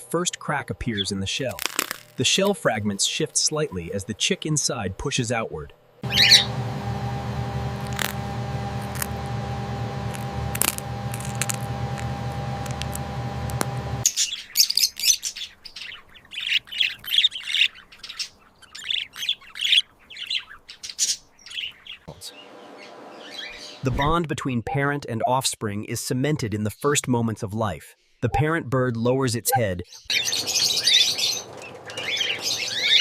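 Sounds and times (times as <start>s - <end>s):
cockatiels chirping: 6.0s - 6.6s, 11.1s - 22.1s, 30.0s - 33.0s
hum of held tones: 6.0s - 14.0s.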